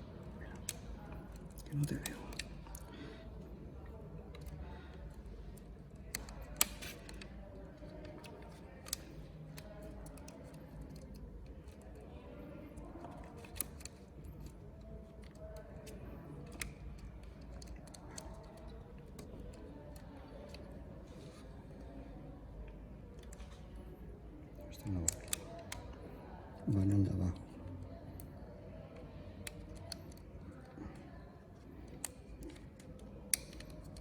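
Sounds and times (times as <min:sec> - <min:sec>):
small metal parts clicking: 0:04.3 - 0:21.5, 0:29.4 - 0:34.0.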